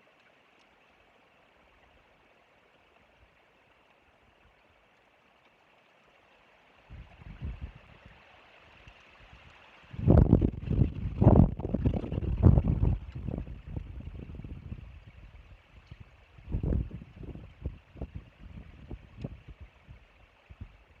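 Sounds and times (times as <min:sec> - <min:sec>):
wind buffeting microphone: 0:06.9 - 0:08.2, 0:09.3 - 0:21.0.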